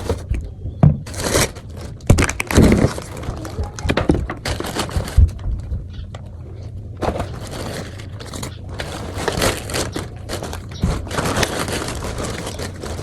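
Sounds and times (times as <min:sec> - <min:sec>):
plastic bags rustling: 0:00.0 - 0:00.3, 0:01.0 - 0:05.6, 0:07.0 - 0:13.0
items being set down: 0:07.0 - 0:13.0.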